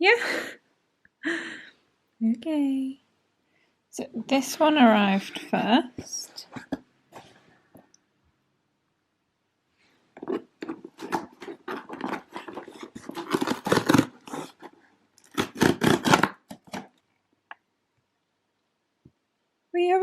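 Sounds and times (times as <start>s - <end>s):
parcel packaging rustling: 10.2s - 17.0s.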